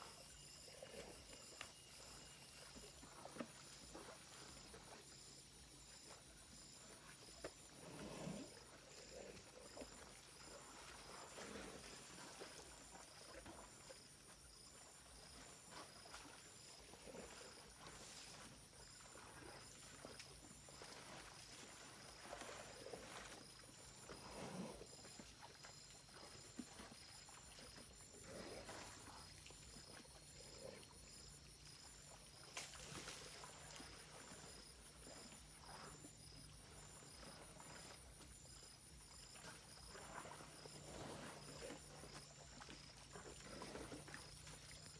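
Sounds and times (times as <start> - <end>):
high-pitched insect chorus: 0.0 - 7.2.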